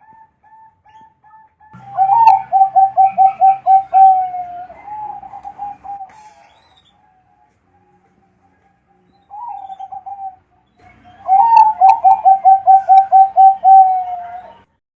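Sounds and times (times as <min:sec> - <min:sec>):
dove cooing: 0:00.0 - 0:06.6, 0:09.3 - 0:14.6.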